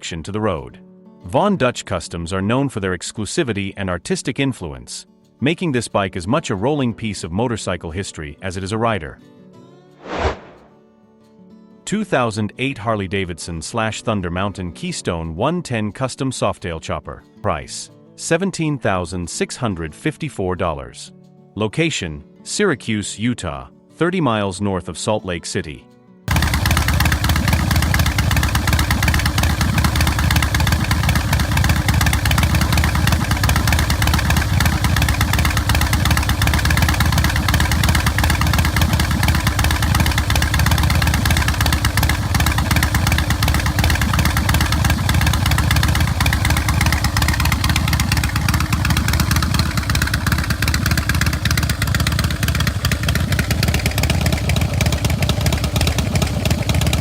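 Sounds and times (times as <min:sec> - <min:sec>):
motorcycle engine idling: 0:26.3 - 0:57.0.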